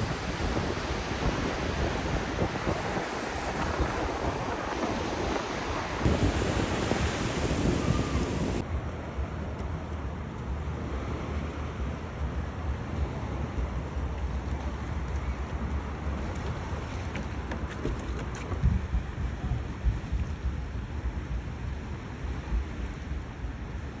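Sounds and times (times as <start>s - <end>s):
steady low rumble: 0.0s - 8.6s
wind blowing across microphone: 0.0s - 9.4s, 12.0s - 24.0s.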